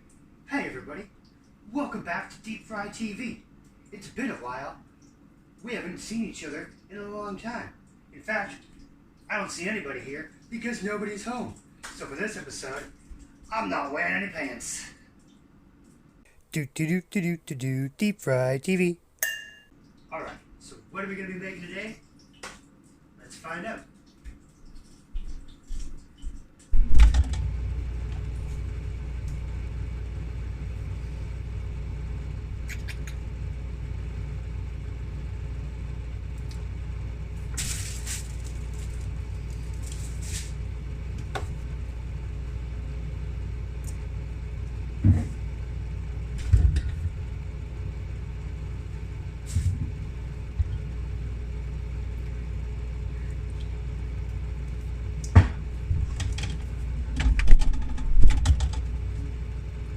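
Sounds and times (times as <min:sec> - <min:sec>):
low rumbling hum: 0:27.4 - 0:59.9.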